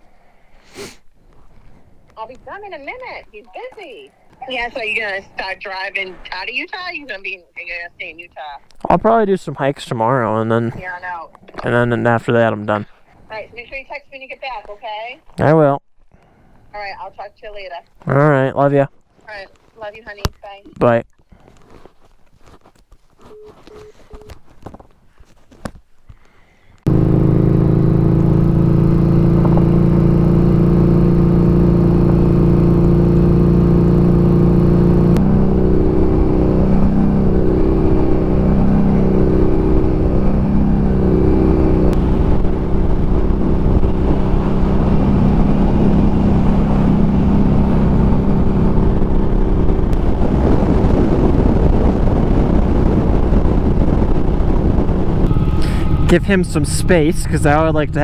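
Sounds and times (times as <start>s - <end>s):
motorcycle engine running: 26.9s - 58.0s
rushing noise: 34.7s - 58.0s.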